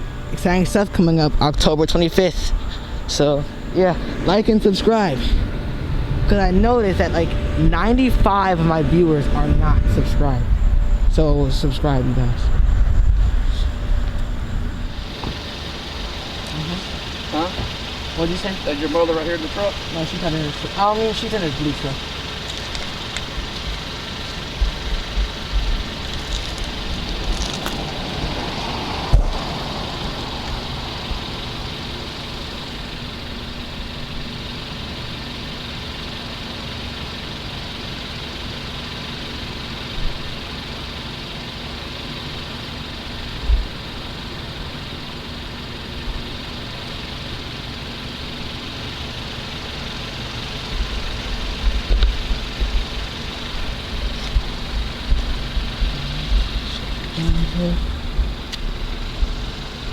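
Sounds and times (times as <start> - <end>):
vehicle engine idling: 0.0 - 59.9
wind buffeting microphone: 5.1 - 16.2, 50.7 - 59.6.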